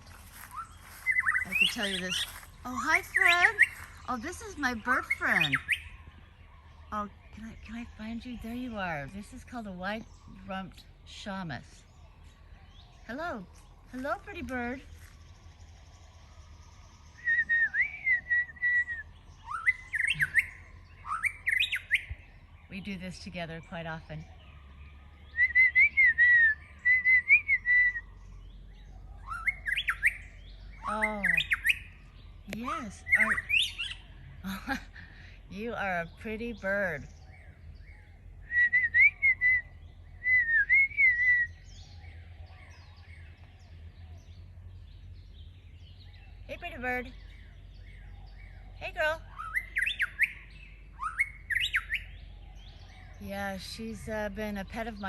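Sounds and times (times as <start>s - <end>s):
bird singing whistled phrases: 0.0s - 34.4s, 35.5s - 55.0s.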